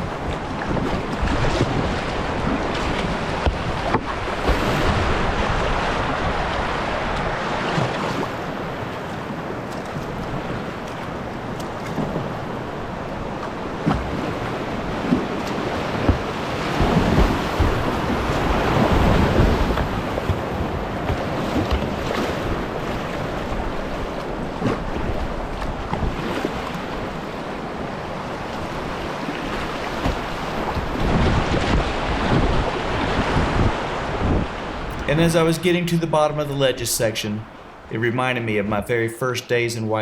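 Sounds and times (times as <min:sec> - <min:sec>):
wind buffeting microphone: 0:00.0 - 0:36.0
water splashes: 0:00.0 - 0:38.9
rushing river rapids: 0:14.2 - 0:25.5.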